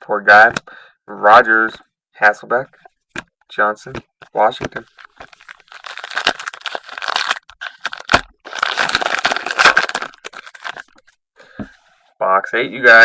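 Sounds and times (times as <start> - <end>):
packaging crinkled and torn: 5.0 - 11.1.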